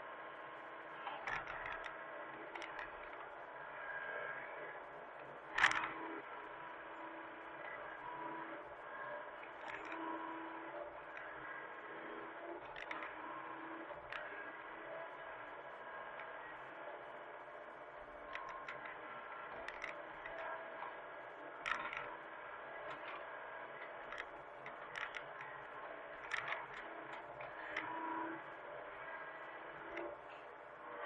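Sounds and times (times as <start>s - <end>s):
mini excavator engine running: 0.1s - 31.0s.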